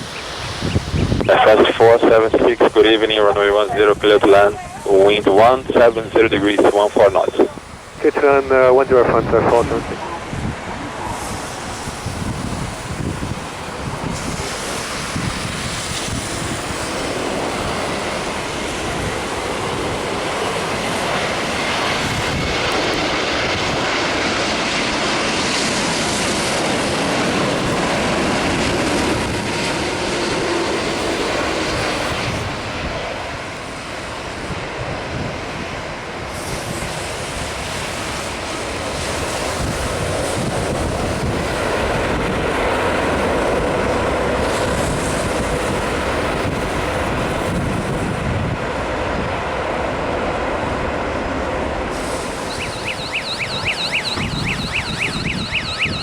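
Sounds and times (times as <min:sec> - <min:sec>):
airliner engines passing: 0:00.0 - 0:56.0.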